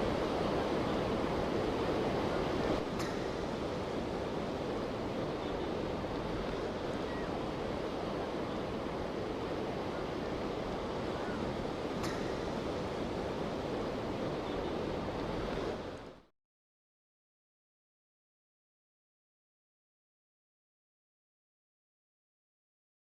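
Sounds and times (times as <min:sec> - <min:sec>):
strong wind: 0:00.0 - 0:16.2
choppy water: 0:00.0 - 0:16.3.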